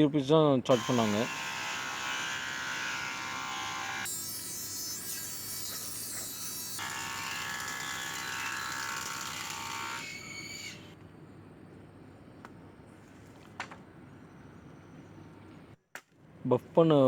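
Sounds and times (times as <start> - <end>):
woodworking machine whining: 0.7 - 10.9.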